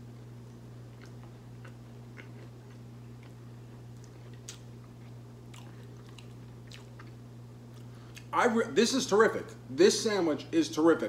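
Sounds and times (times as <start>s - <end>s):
man chewing food: 0.0s - 8.3s
steady low hum: 0.0s - 11.0s.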